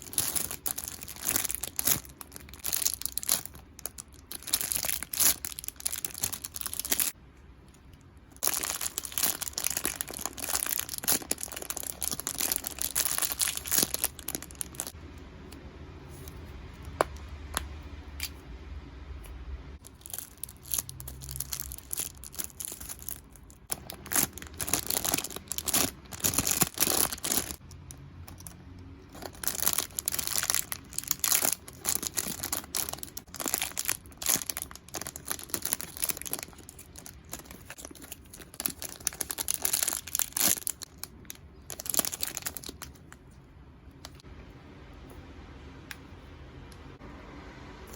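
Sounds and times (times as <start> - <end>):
plastic packaging crinkling: 0.0 - 7.2, 8.4 - 15.0, 19.8 - 43.3.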